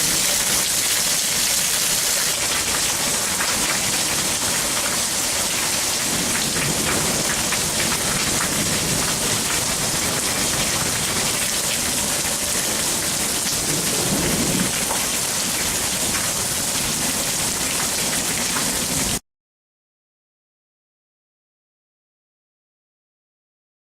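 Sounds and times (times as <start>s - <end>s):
heavy rain pouring: 0.0s - 19.2s
rumble of thunder: 5.7s - 16.4s.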